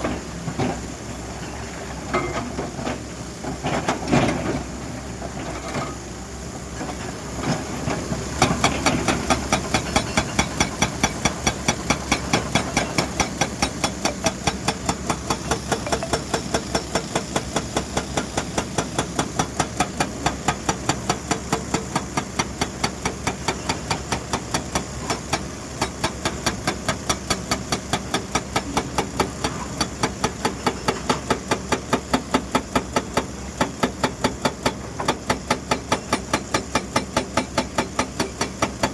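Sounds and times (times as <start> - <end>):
excavator engine running: 0.0 - 38.9
hydraulic breaker hammering: 32.0 - 38.9.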